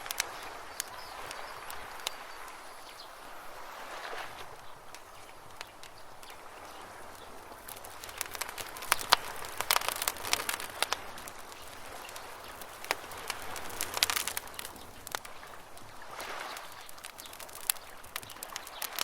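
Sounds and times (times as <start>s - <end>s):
soft steady hiss: 0.0s - 19.0s
wood campfire crackling: 0.0s - 19.0s.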